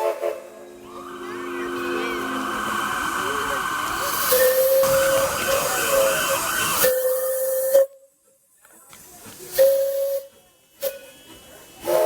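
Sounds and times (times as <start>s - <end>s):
steam hissing: 0.0s - 7.9s, 8.9s - 12.0s
steam locomotive whistle: 0.0s - 8.0s, 9.6s - 11.1s, 11.8s - 12.0s.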